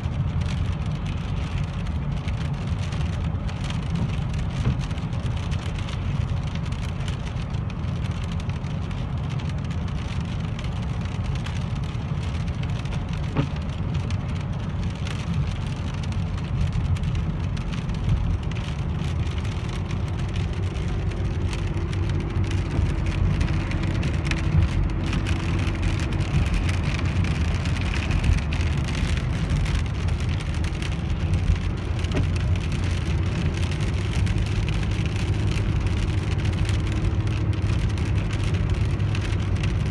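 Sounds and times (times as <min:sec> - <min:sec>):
rain falling on car: 0:00.0 - 0:39.9
road and engine rumble in car: 0:00.0 - 0:39.9.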